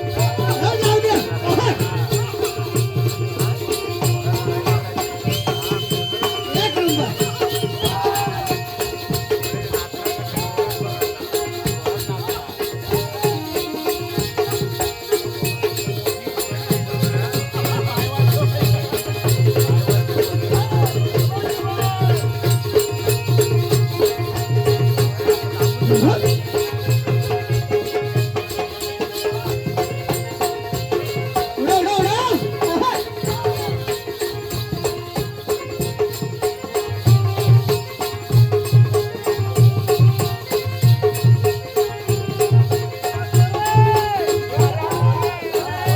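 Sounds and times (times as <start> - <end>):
jingling percussion rhythm: 0.0 - 45.9
held tone: 0.2 - 10.8.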